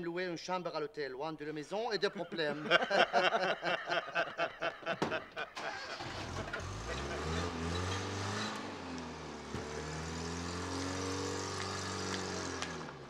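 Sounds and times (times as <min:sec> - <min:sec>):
car engine revving: 0:05.6 - 0:13.0.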